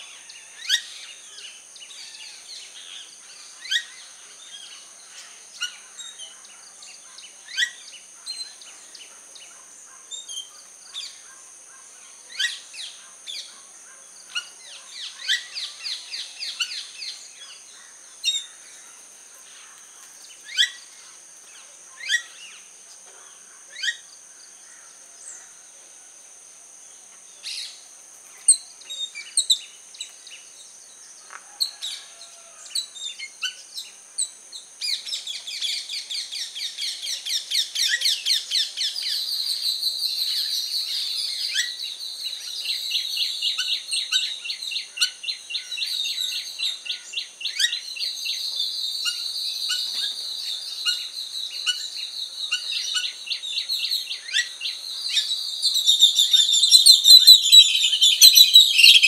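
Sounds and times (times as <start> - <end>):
birds chirping: 40.2 - 59.0.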